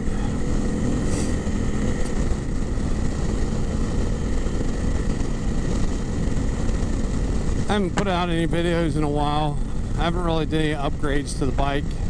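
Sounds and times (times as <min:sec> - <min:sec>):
motorcycle engine running: 0:00.0 - 0:12.0
wind rushing over microphone: 0:00.0 - 0:12.0.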